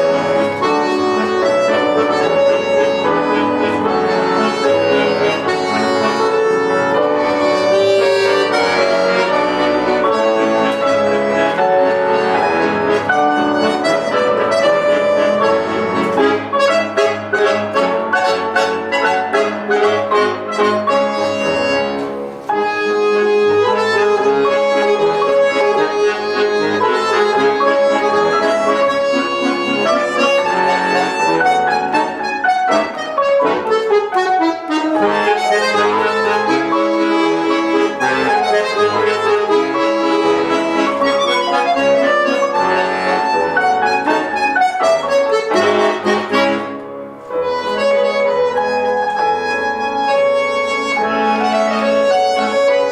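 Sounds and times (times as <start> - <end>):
accordion waltz melody: 0.0 - 52.9
piano accompaniment: 0.0 - 52.9.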